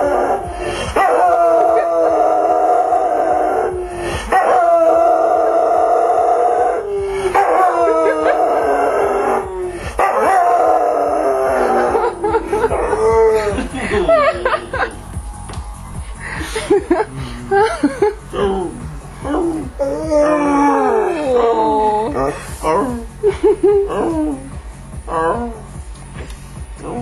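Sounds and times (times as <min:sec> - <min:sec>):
dog howling: 0:00.0 - 0:15.0, 0:18.4 - 0:23.2
man howling: 0:00.0 - 0:15.2, 0:16.4 - 0:25.8, 0:26.8 - 0:27.0.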